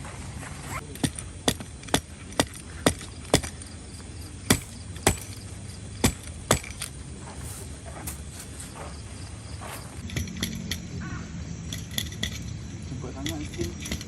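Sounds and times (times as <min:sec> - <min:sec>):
sharp knocks: 0:04.5 - 0:05.4, 0:06.0 - 0:06.9.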